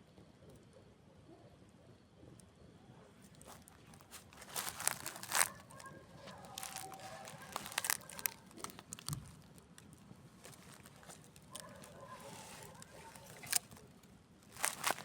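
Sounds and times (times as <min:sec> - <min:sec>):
campfire crackling: 0:03.2 - 0:15.0
burning wood snapping and popping: 0:03.3 - 0:15.0.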